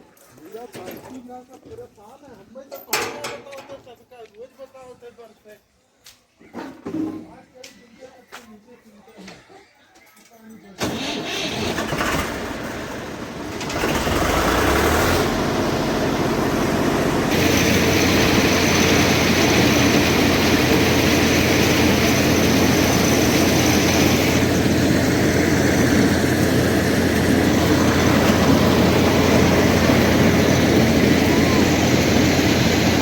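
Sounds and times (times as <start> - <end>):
tractor engine running: 10.8 - 33.0.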